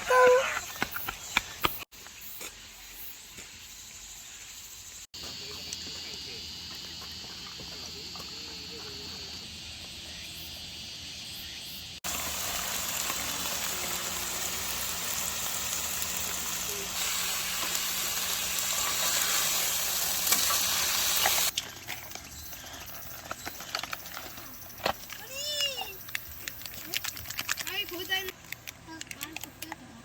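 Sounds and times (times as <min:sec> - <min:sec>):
food frying with sizzle: 0:12.0 - 0:21.6.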